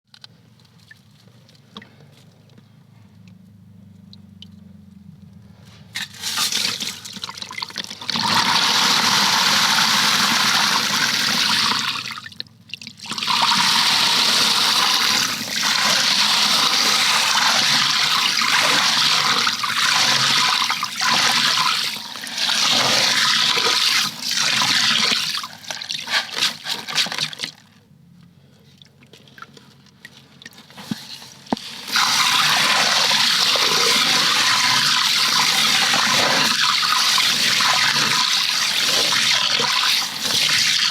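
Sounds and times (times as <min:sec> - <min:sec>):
water gushing: 0:06.0 - 0:12.3, 0:13.0 - 0:27.1, 0:30.8 - 0:40.9.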